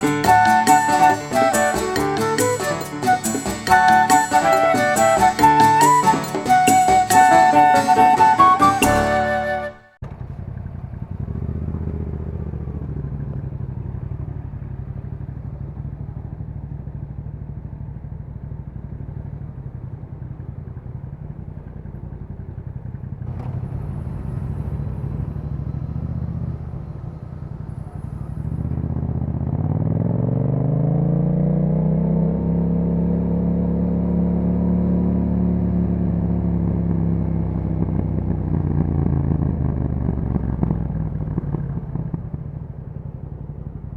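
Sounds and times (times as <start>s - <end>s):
motorcycle engine running: 9.1s - 43.9s.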